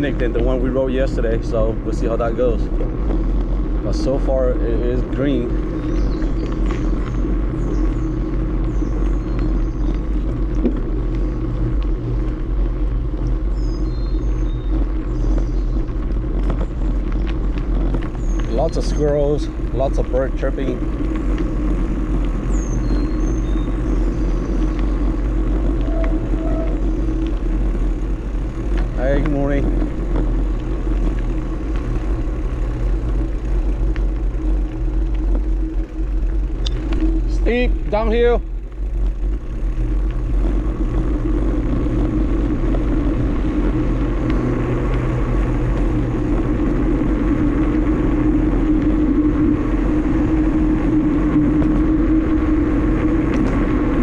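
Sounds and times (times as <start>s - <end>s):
bicycle tyre noise: 0.0s - 54.0s
birds chirping: 0.0s - 54.0s
wind rumble: 0.0s - 54.0s
light ticks: 33.2s - 37.1s.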